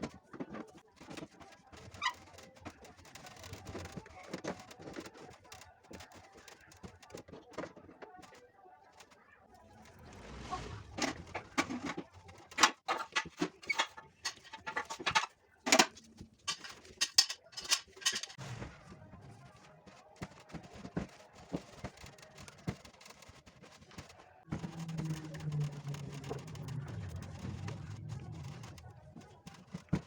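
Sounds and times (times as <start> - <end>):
hard objects clicking and knocking: 11.0 - 18.4, 19.6 - 30.0.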